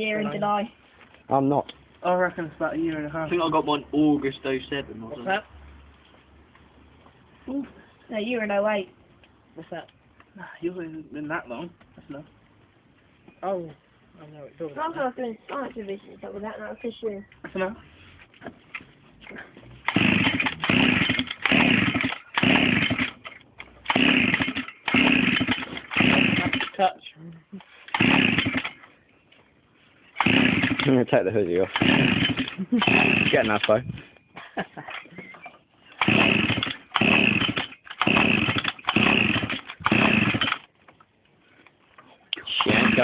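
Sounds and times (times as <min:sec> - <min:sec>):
small two-stroke engine revving: 0:19.8 - 0:26.8, 0:27.9 - 0:28.8, 0:30.2 - 0:31.0, 0:31.6 - 0:33.8, 0:36.0 - 0:40.6, 0:42.5 - 0:43.0.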